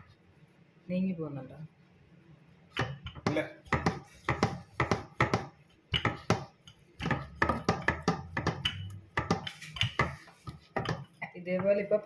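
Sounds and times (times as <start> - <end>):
knocks and taps on kitchen board: 2.8 - 11.8.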